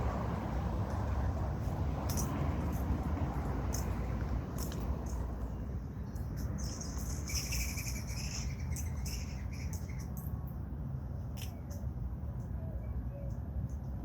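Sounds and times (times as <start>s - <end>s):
steady low rumble: 0.0s - 14.0s
small birds chirping: 4.6s - 10.3s.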